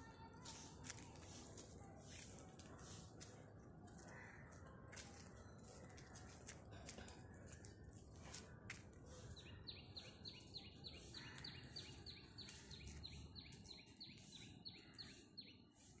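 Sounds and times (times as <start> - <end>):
bird chirping: 9.4 - 15.9.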